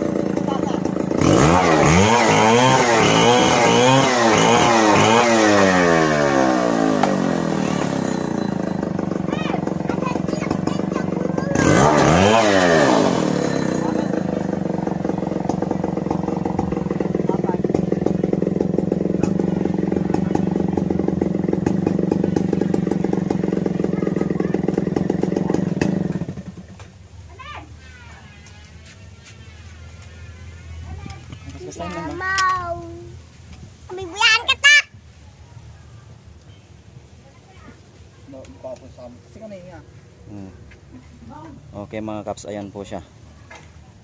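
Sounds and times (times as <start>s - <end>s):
chainsaw ripping a log: 0.0s - 23.8s, 24.4s - 26.6s.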